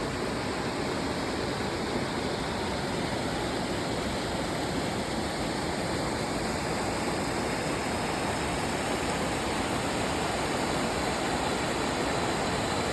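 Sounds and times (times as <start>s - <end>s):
waterfall roaring: 0.0s - 12.9s.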